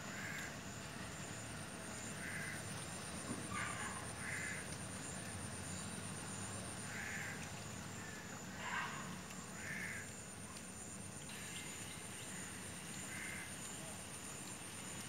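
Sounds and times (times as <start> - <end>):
crow cawing: 2.2 - 2.6, 3.5 - 4.6, 6.9 - 7.4, 9.6 - 10.1, 13.1 - 13.5.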